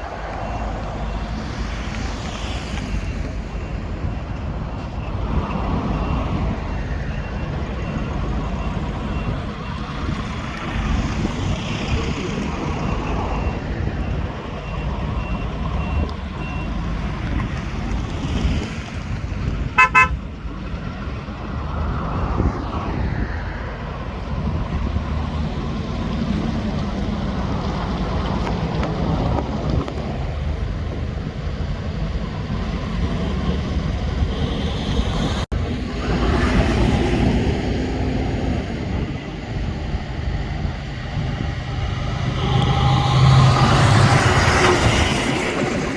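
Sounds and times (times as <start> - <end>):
highway traffic rumble: 0.0 - 45.9
vehicle horn toot: 19.8 - 20.2, 42.1 - 44.0.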